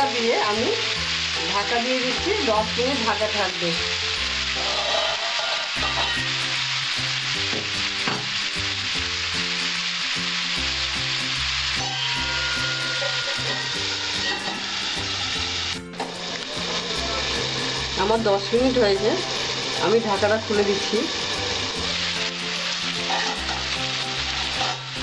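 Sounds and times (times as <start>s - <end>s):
vegetables sizzling in oil: 0.0s - 25.0s
metal lid clanking onto pan: 23.0s - 23.8s.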